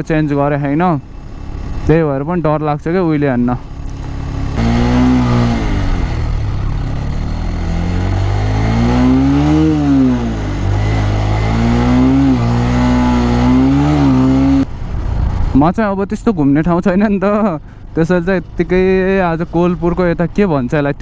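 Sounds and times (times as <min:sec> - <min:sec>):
motorcycle engine revving: 0:00.0 - 0:15.7.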